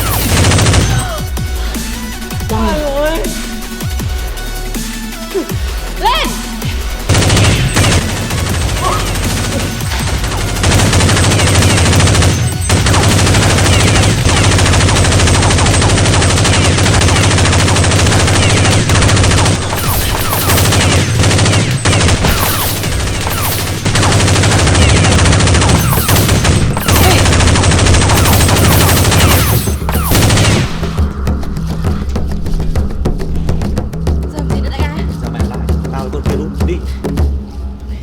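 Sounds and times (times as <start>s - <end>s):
rapid automatic gunfire: 0.0s - 1.1s, 7.1s - 31.0s.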